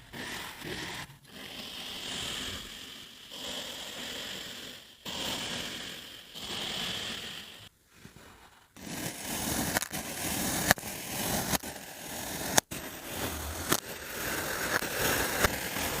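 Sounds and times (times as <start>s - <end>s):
sand scraping and crunching: 8.1s - 16.0s.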